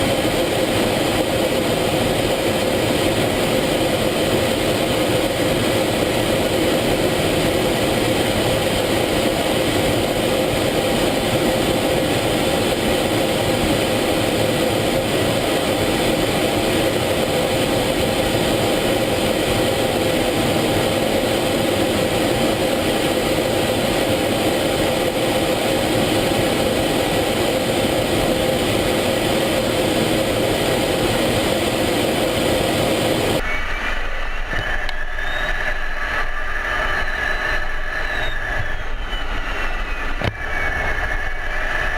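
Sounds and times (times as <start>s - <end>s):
constant hum: 0.0s - 41.9s
jet engine and air noise: 0.0s - 41.9s
faint rising whine: 30.0s - 41.9s.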